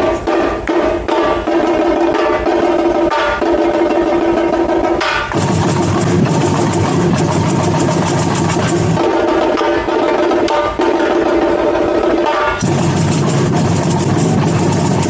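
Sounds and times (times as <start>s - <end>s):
samba percussion band: 0.0s - 15.0s
deep drum: 5.2s - 9.8s, 12.6s - 15.0s.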